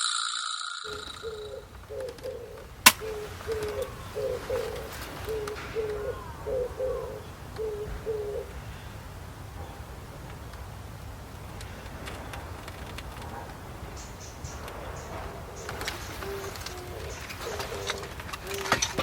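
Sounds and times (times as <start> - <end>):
bird cooing: 0.9 - 8.8, 15.6 - 19.0.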